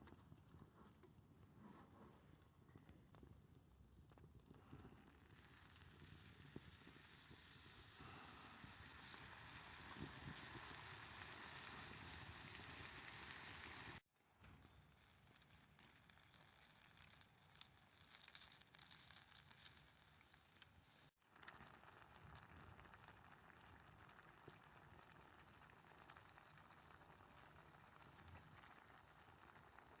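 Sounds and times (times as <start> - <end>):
campfire crackling and popping: 3.0 - 14.0, 14.7 - 30.0.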